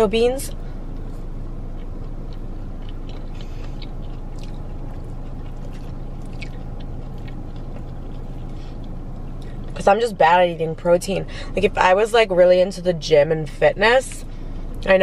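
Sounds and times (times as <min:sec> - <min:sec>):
low car hum: 0:00.0 - 0:15.0
person chewing food: 0:00.5 - 0:09.8.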